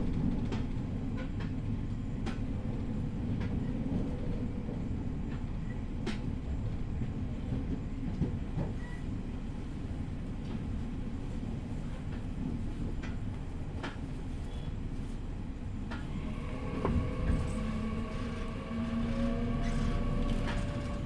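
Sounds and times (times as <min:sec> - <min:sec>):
train cabin rumble: 0:11.4 - 0:21.0.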